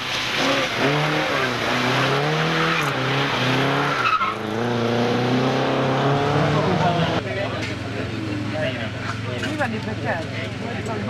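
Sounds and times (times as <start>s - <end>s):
rally car engine revving: 0.0s - 8.3s.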